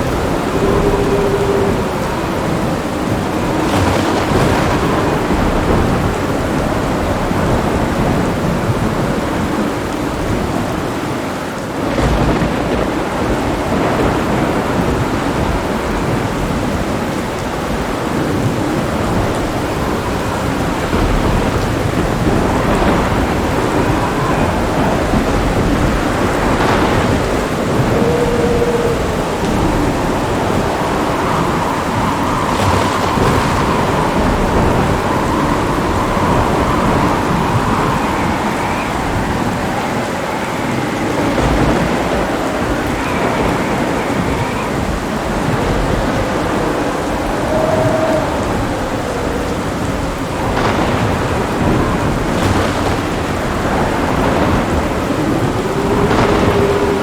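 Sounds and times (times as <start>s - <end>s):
heavy rain falling: 0.0s - 57.0s
thunder rumbling: 0.0s - 57.0s.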